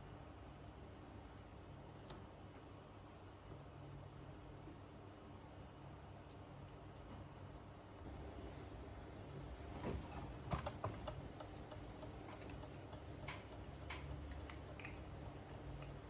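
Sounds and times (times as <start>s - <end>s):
faint steady hum: 0.0s - 16.0s
small tools clicking and tapping: 10.6s - 15.0s.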